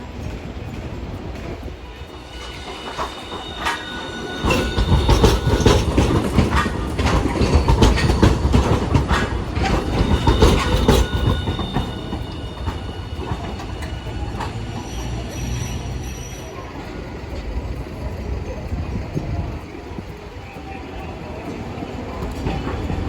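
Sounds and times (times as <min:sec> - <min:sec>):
streetcar wheels clattering on rails: 0:00.0 - 0:23.0
thin wheel squeal: 0:02.0 - 0:08.2, 0:09.1 - 0:17.0.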